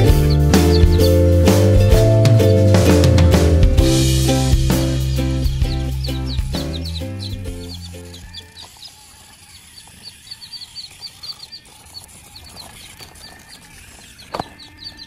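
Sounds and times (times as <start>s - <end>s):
backing music: 0.0s - 8.3s
birds chirping: 0.0s - 15.0s.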